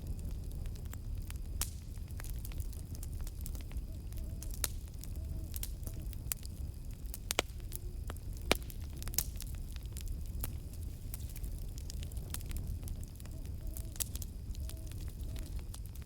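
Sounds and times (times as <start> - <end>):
campfire crackling and popping: 0.0 - 16.0
low rumble of burning wood: 0.0 - 16.0
owl hooting: 3.8 - 5.6.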